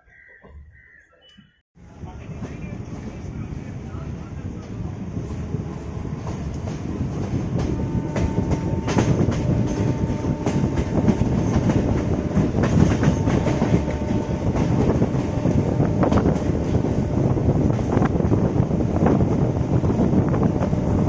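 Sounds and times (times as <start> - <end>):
train wheels clicking over rail joints: 4.6 - 20.9.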